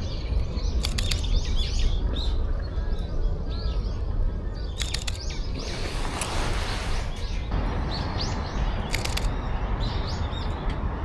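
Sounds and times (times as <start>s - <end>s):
magpies calling: 0.0s - 10.6s
sharp clicks: 0.8s - 1.5s, 4.8s - 6.4s, 8.8s - 9.4s.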